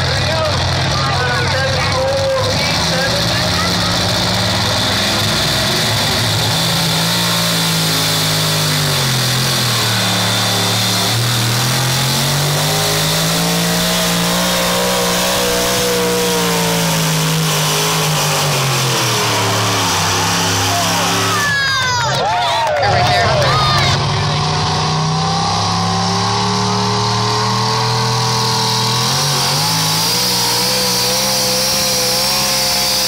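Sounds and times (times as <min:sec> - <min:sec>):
vehicle engine running hard: 0:00.0 - 0:33.0.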